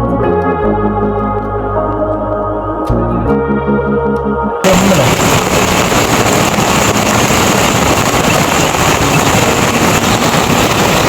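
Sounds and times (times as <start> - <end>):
heavy rain pouring: 4.6 - 11.0.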